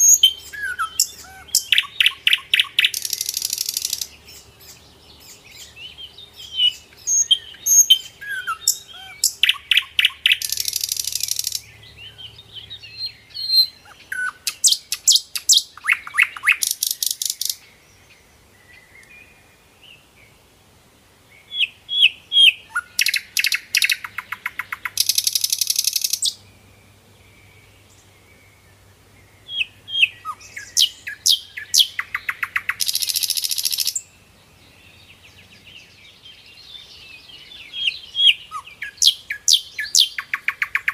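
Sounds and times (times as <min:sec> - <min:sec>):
songbird singing with buzzy trill: 0:00.0 - 0:20.5, 0:21.2 - 0:40.9.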